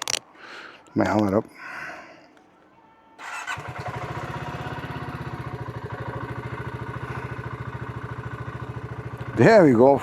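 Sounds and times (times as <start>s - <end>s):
motorcycle engine idling: 3.2s - 10.0s.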